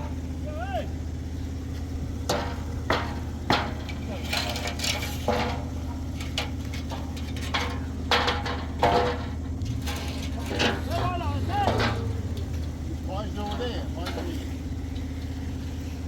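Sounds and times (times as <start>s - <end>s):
short shouts: 0.0s - 1.0s
engine running: 0.0s - 16.0s
sharp knocks and scrapes: 2.2s - 12.8s.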